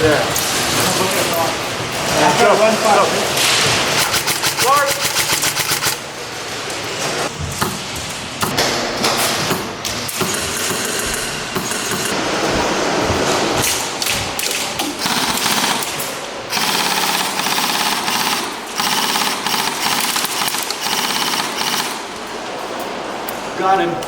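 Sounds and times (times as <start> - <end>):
airsoft guns firing bursts: 3.9 - 6.0, 9.4 - 12.2, 14.9 - 22.2.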